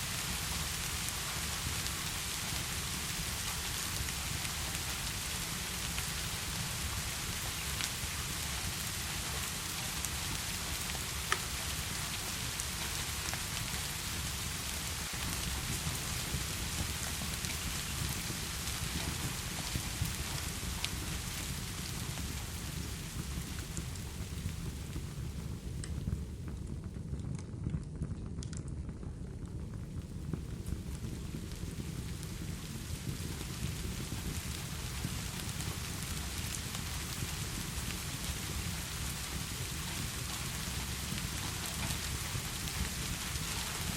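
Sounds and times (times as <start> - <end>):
heavy rain falling: 0.0 - 26.4, 30.3 - 43.9.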